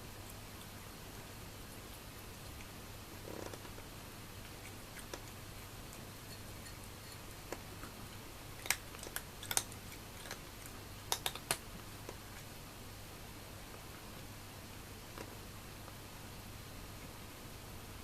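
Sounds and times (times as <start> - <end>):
faint steady hum: 0.0 - 18.0
cat crunching dry food: 4.4 - 7.9, 8.5 - 11.6.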